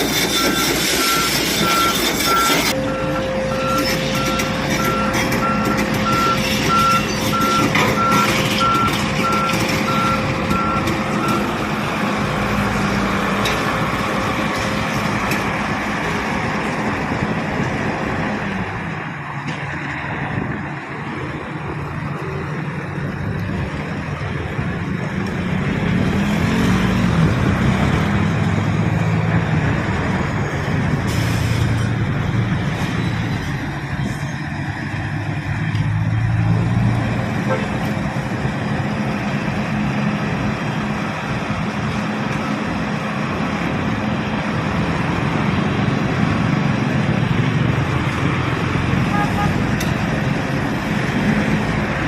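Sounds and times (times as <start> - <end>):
excavator diesel engine running: 0.0 - 52.0
backup alarm beeping: 0.4 - 11.6.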